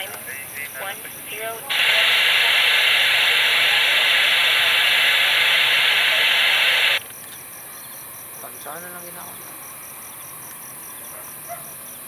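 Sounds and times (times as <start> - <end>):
loud steady hiss: 0.0 - 10.0.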